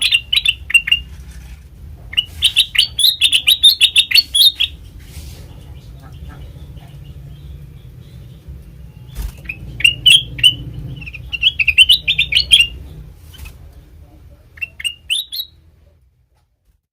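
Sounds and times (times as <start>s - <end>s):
bird chirping: 0.0s - 1.4s, 2.0s - 16.0s.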